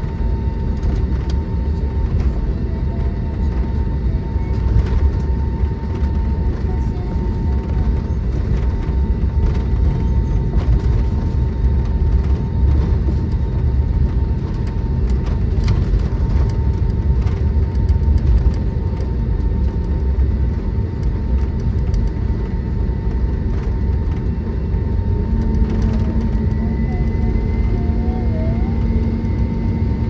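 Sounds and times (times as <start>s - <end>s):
jet engine cabin rumble: 0.0s - 30.0s
steady whine: 0.0s - 30.0s
low tone: 25.1s - 30.0s.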